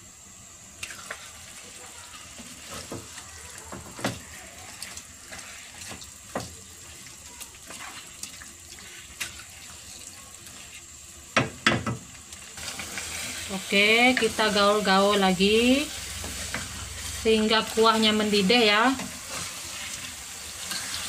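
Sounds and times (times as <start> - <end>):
chicken sizzling in a wok: 0.0 - 21.0
wooden spatula knocking on pan: 2.7 - 3.1, 3.7 - 4.2, 11.3 - 12.1.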